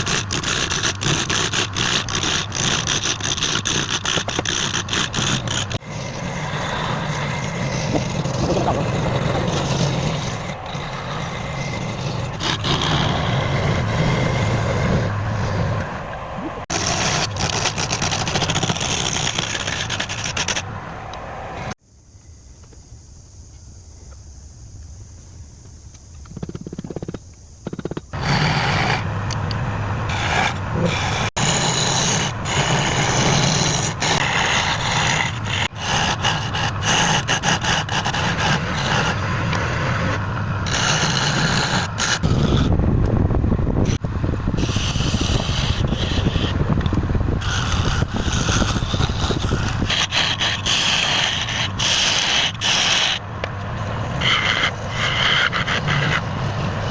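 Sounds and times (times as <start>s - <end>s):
turning tool scraping wood: 0.0s - 16.1s, 16.7s - 20.7s, 26.3s - 29.4s, 30.1s - 42.8s, 43.8s - 44.0s, 44.6s - 56.9s
wood lathe motor hum: 0.0s - 16.1s, 28.2s - 42.8s, 43.8s - 53.2s, 53.8s - 56.9s.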